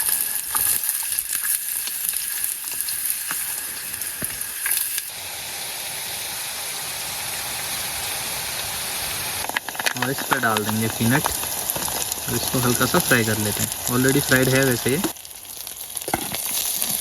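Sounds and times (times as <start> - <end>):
onions sizzling in hot oil: 0.0 - 17.0
stirring clicks: 9.5 - 13.9.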